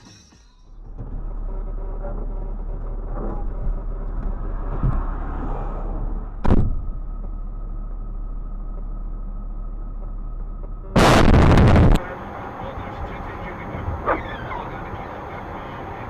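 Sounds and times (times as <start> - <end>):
car engine and road noise: 0.0 - 16.0
collision impact bang: 6.4 - 7.2.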